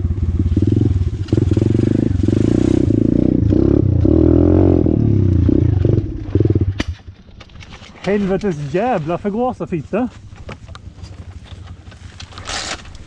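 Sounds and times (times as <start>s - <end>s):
motorbike engine revving: 0.0s - 6.8s
person speaking: 8.0s - 10.2s.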